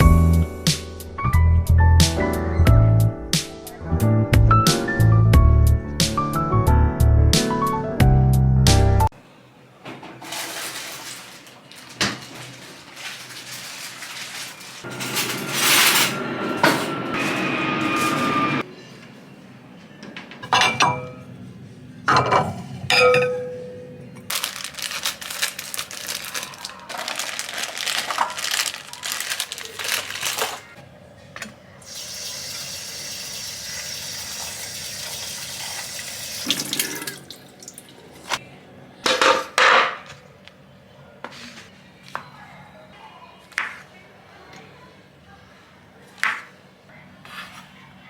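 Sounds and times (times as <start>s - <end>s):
dishes clinking and knocking: 14.9s - 17.5s, 20.2s - 21.3s, 22.1s - 23.8s, 39.0s - 40.2s
tap water running into sink: 31.9s - 38.4s.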